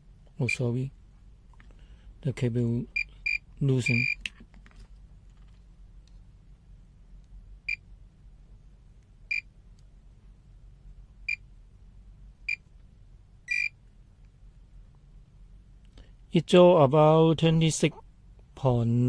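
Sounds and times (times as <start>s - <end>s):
multimeter beeping: 3.0s - 4.3s, 13.5s - 13.8s.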